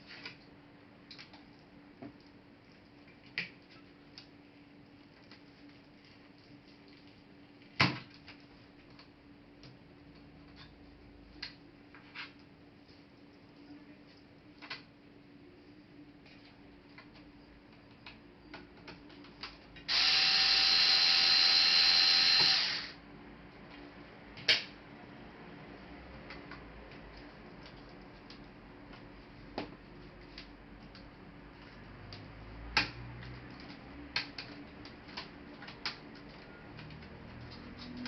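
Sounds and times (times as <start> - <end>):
small power tool motor: 19.9 - 23.0.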